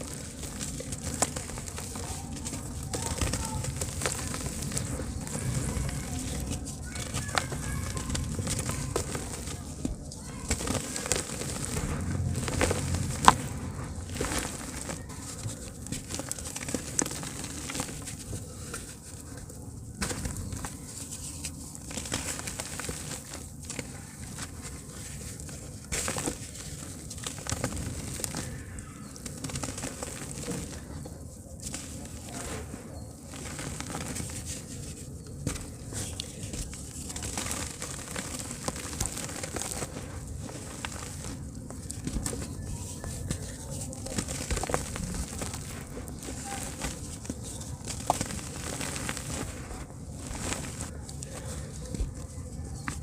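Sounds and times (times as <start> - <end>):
low rumbling hiss: 0.0 - 15.9
dirt crumbling in water: 0.0 - 18.0
dirt crackling in water: 0.0 - 19.0, 20.0 - 52.2.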